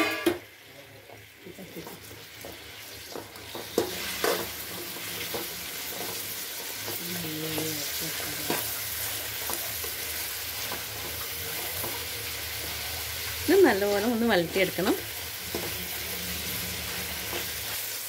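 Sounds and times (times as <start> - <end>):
metal ladle scraping and knocking pan: 0.0 - 0.4, 2.4 - 7.0, 15.4 - 17.7
vegetables sizzling in hot oil: 0.0 - 18.0.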